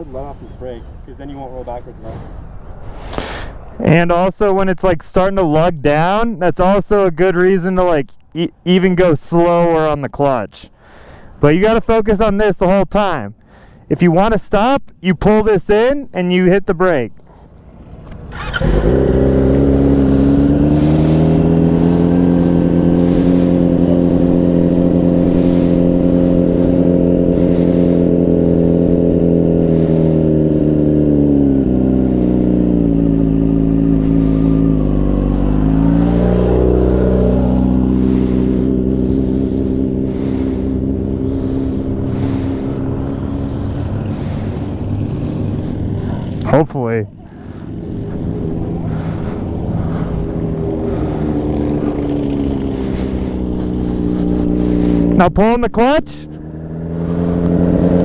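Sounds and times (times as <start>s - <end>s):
motorcycle engine lugging down: 17.3s - 58.0s.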